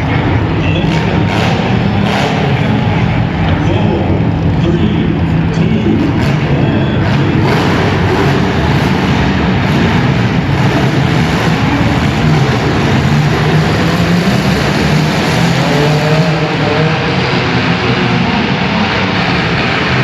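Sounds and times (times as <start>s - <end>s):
car engines at high revs: 0.0s - 20.0s
dense wash of noise: 0.0s - 20.0s
engine revving up and down: 0.0s - 20.0s.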